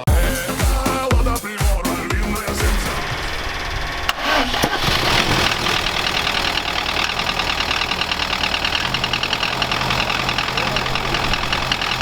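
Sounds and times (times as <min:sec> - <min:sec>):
car engine idling with ticking: 0:02.8 - 0:12.0.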